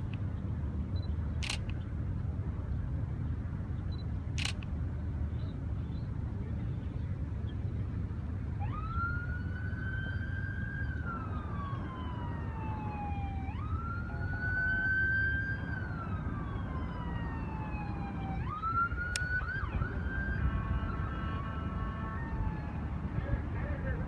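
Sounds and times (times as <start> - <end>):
sharp click: 1.4 - 1.8, 4.4 - 4.7
siren wailing: 8.6 - 22.9.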